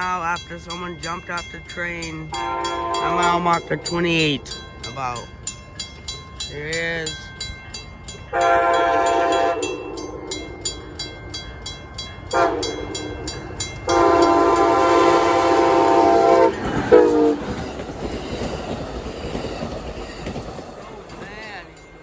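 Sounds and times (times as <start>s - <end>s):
train wheels clacking on rails: 0.0s - 22.0s
locomotive air horn blasts: 2.4s - 3.3s, 8.3s - 9.9s, 12.3s - 12.8s, 13.9s - 17.4s.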